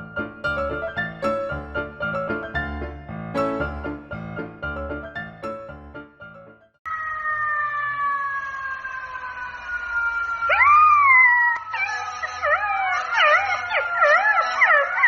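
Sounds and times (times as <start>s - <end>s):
dog howling: 11.5s - 15.0s.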